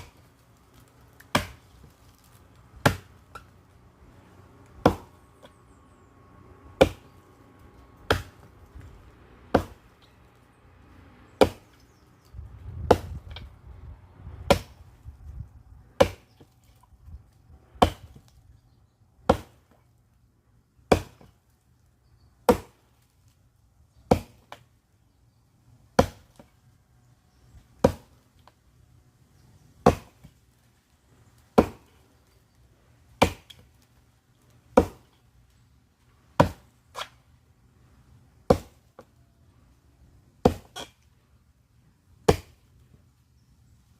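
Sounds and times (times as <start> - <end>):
axe chopping firewood: 0.0 - 3.6, 4.7 - 5.6, 6.8 - 7.2, 8.0 - 10.2, 11.4 - 11.8, 12.7 - 13.5, 14.4 - 14.9, 16.0 - 16.9, 17.6 - 18.4, 19.2 - 19.8, 20.8 - 21.4, 22.4 - 23.0, 24.0 - 24.7, 25.9 - 26.5, 27.8 - 28.6, 29.8 - 30.4, 31.4 - 32.3, 33.1 - 35.3, 36.2 - 37.2, 38.4 - 39.1, 40.4 - 41.1, 42.1 - 42.9
rustling: 0.0 - 4.7.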